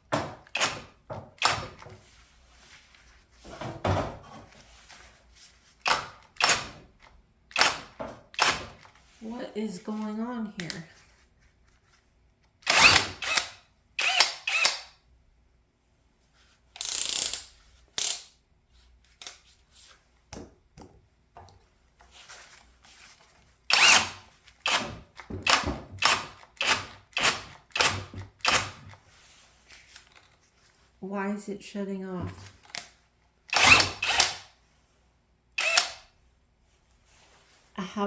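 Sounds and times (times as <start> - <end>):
cordless drill spinning in drywall: 12.6 - 15.0, 22.4 - 30.4, 33.5 - 34.6, 35.6 - 36.2.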